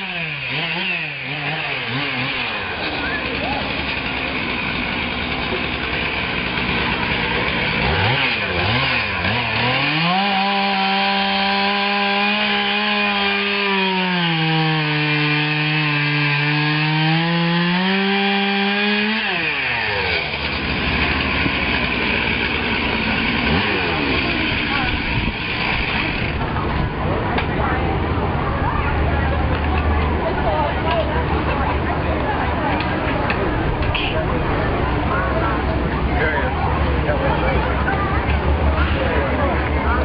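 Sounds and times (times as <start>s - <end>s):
chainsaw cutting wood: 0.0s - 26.6s.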